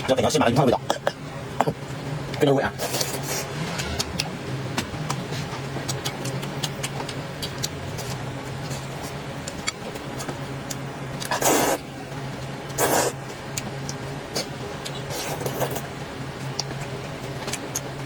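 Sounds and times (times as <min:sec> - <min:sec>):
steady low hum: 0:00.0 - 0:18.0
mouth and chewing clicks: 0:05.9 - 0:08.8, 0:16.5 - 0:17.9
loud slurps of noodles: 0:12.8 - 0:13.1.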